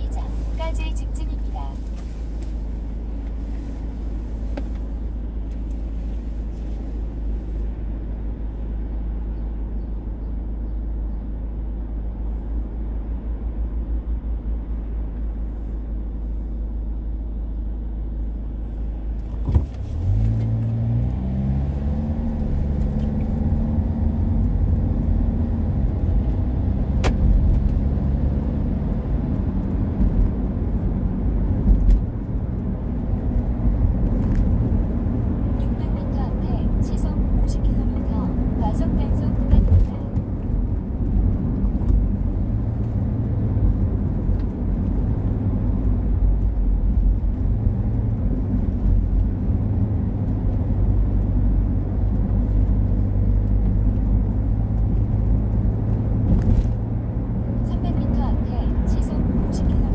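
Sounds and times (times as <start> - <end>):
vehicle engine rumble: 0.0 - 59.9.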